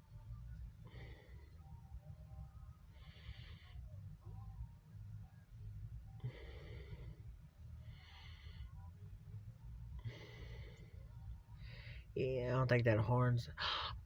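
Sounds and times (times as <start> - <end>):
faint low rumble: 0.0 - 14.0
person breathing: 0.7 - 4.6, 5.6 - 12.2, 13.6 - 14.0.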